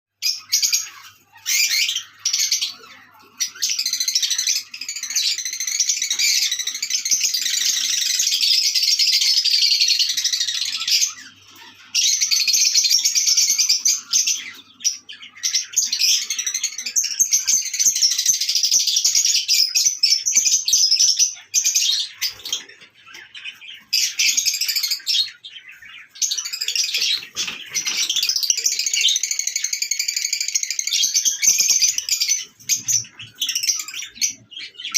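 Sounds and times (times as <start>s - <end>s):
lovebirds chattering: 0.1s - 34.9s.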